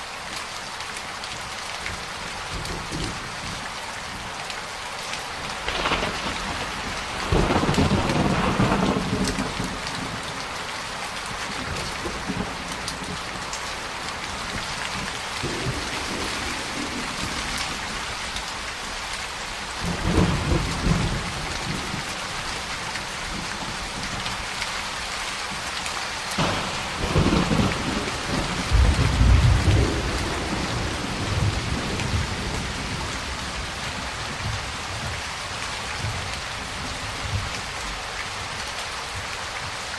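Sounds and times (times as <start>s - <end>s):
steady rain falling: 0.0s - 39.9s
thunder rolling: 5.6s - 10.3s, 26.4s - 33.8s.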